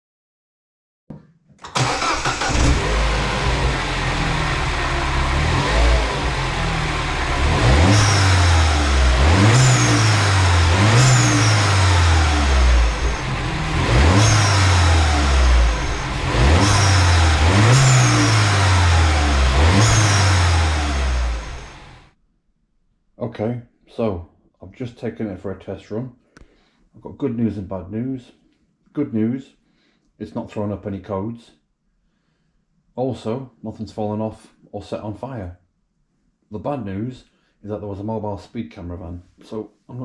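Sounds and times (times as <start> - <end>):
car engine accelerating: 1.8 - 22.1.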